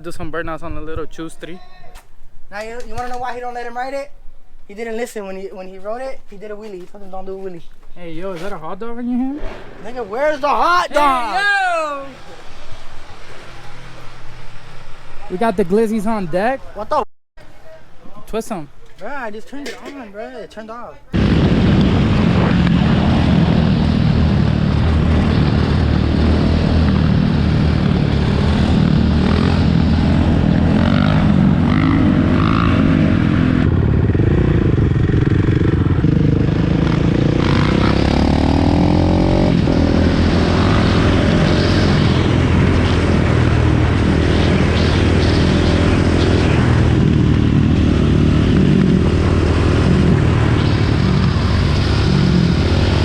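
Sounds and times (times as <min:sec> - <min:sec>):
dirt bike engine running: 0:21.2 - 0:53.0.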